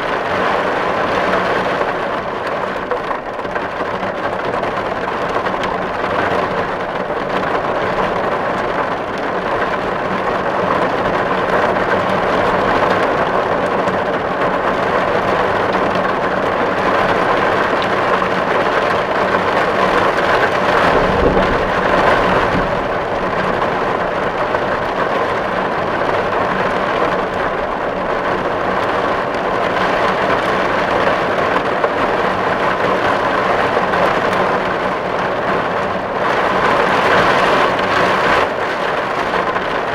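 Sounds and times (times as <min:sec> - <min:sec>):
heavy rain on a tin roof: 0:00.0 - 0:39.9
brief low rumble: 0:20.8 - 0:23.8.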